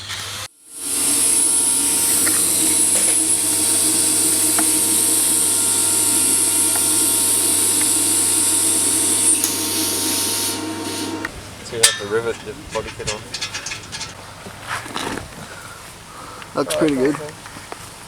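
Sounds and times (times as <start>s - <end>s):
power tool running: 0.0s - 11.4s.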